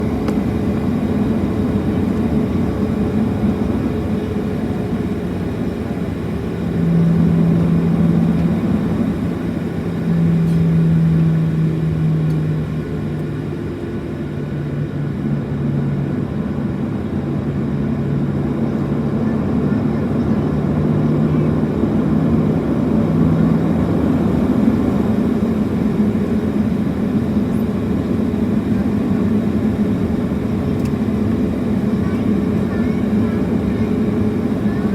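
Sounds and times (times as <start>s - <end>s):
airplane cabin drone: 0.0s - 34.9s.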